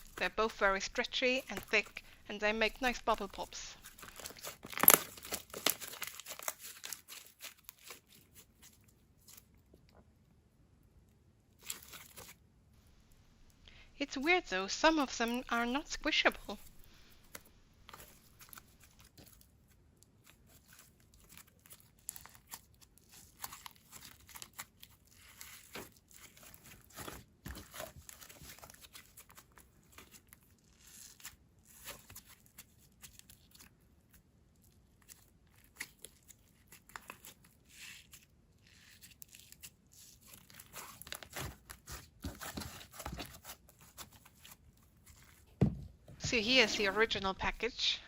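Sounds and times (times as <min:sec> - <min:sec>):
slime stretched and squished by hand: 0:03.8 - 0:09.9, 0:11.5 - 0:12.4, 0:16.6 - 0:45.6.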